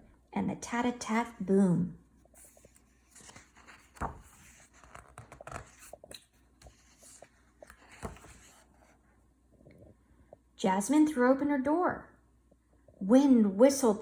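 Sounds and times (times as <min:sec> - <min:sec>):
paper rustling: 0:02.3 - 0:09.0.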